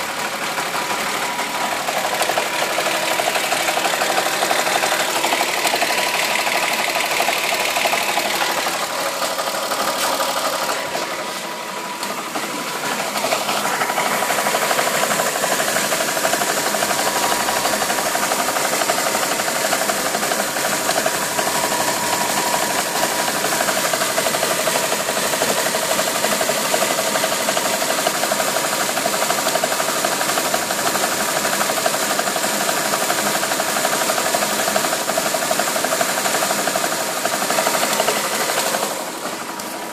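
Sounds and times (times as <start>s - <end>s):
car engine with ticking rattle: 0.0s - 39.9s.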